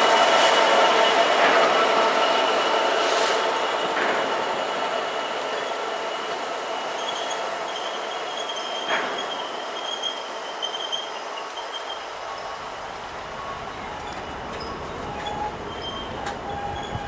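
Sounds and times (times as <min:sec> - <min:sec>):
high-pitched wheel squeal: 0:07.0 - 0:12.5, 0:13.4 - 0:17.0.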